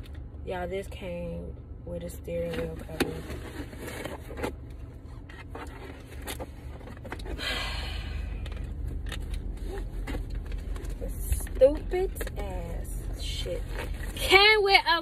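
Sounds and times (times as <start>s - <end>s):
car engine humming: 0.0s - 15.0s
package scraping and rustling: 2.8s - 7.4s.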